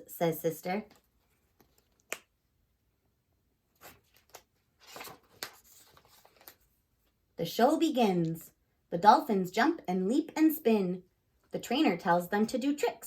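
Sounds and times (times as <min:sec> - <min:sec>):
paper rustling: 0:03.7 - 0:06.8.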